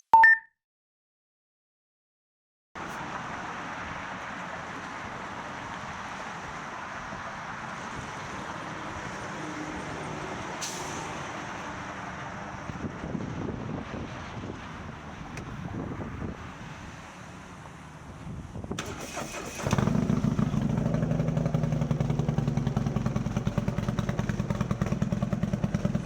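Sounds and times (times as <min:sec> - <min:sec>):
wind noise: 0:12.6 - 0:17.0, 0:18.1 - 0:19.0
motorcycle engine: 0:18.8 - 0:26.0.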